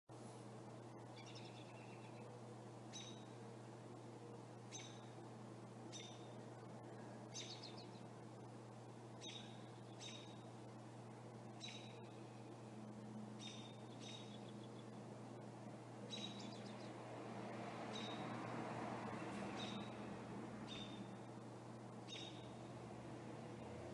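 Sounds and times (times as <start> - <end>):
steady low hum: 0.1 - 23.9
bird chirping: 1.0 - 3.4, 4.7 - 5.2, 5.9 - 8.1, 9.2 - 10.5, 11.5 - 12.2, 13.4 - 15.0, 16.0 - 17.0, 17.9 - 18.4, 19.0 - 21.4, 22.0 - 22.6.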